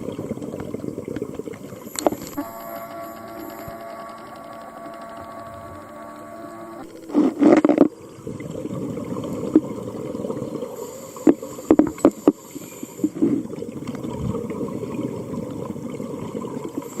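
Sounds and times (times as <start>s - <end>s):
steady hum: 1.5s - 13.6s
underwater air bubbling: 6.9s - 17.0s.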